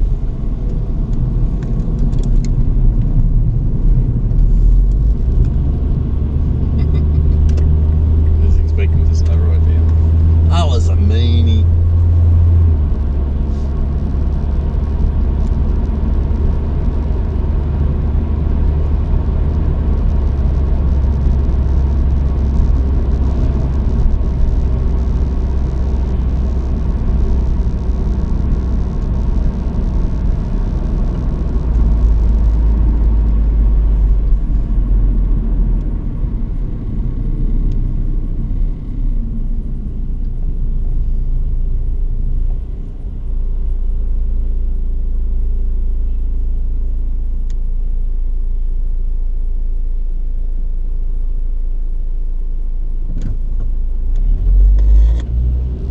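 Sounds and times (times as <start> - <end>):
truck engine rumble: 0.0 - 48.6
higher road hiss: 13.4 - 13.9.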